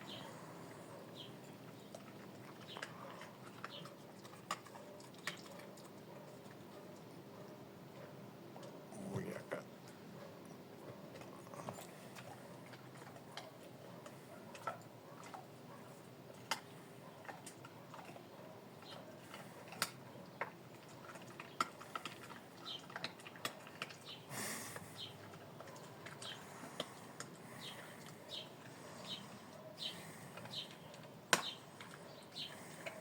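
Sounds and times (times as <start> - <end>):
dog crunching dry food: 0.9 - 7.2, 10.2 - 33.0.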